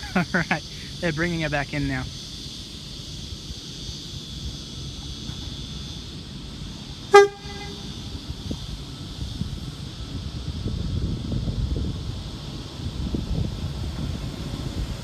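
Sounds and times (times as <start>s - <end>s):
high background hiss: 0.0s - 15.0s
train horn toot: 7.0s - 8.3s.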